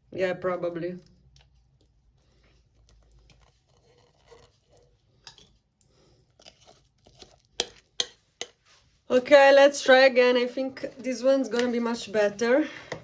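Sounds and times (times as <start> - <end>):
soft rustling and scraping: 1.0 - 9.5.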